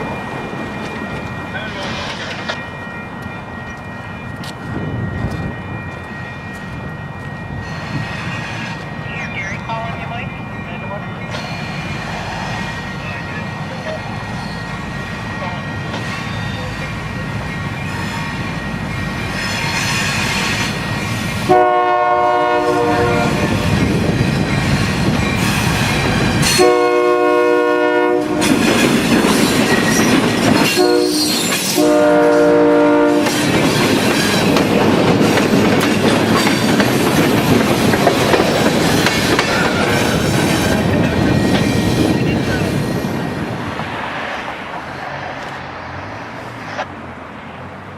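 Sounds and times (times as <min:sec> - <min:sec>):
train rumbling and clacking past: 0:00.0 - 0:47.9
locomotive horn blasts: 0:21.5 - 0:23.5, 0:26.5 - 0:28.6, 0:30.6 - 0:33.4.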